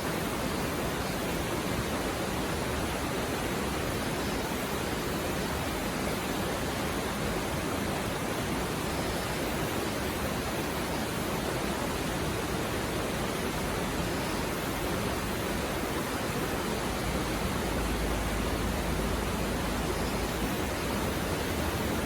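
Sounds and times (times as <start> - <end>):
river flowing over rocks: 0.0 - 22.0.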